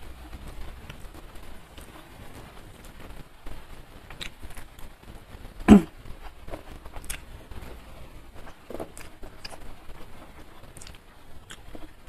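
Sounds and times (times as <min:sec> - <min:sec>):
chewing with wet mouth clicks: 0:04.1 - 0:04.7, 0:07.0 - 0:07.3, 0:10.7 - 0:11.9
loud short mouth sound: 0:05.7 - 0:05.9.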